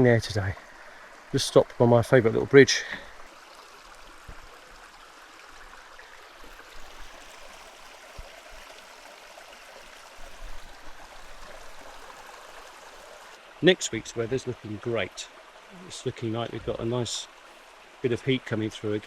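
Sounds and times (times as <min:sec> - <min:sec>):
stream rushing water: 0:00.0 - 0:19.0.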